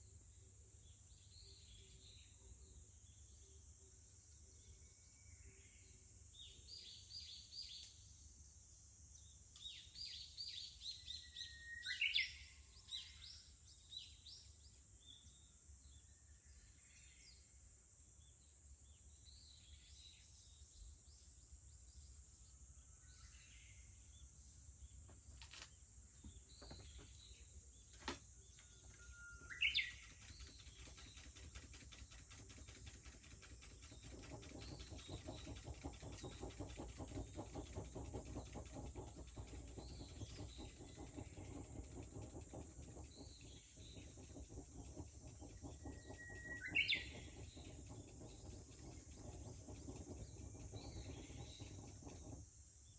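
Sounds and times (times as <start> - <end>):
bird whistling song: 9.6 - 13.4, 28.6 - 32.9, 33.8 - 52.4
small birds chirping: 23.1 - 52.9
cicadas droning: 24.9 - 52.9.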